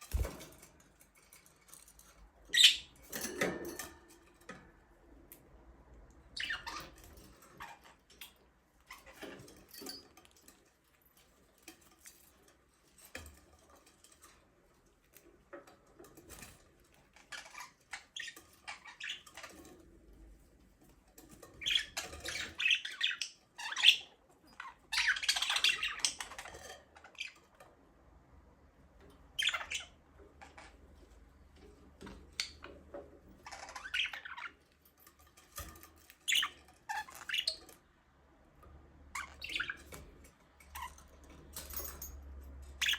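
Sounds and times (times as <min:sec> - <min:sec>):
budgerigars chirping and squawking: 0:02.6 - 0:03.0, 0:06.4 - 0:09.6, 0:17.2 - 0:19.6, 0:21.6 - 0:27.5, 0:29.3 - 0:30.8, 0:33.3 - 0:34.6, 0:36.1 - 0:37.8, 0:39.1 - 0:41.0.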